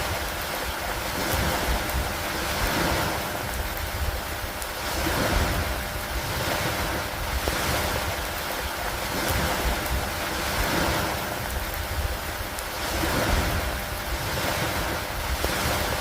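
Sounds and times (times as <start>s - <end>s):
low wind-like rumble: 0.0s - 16.0s
steady rain: 0.0s - 16.0s.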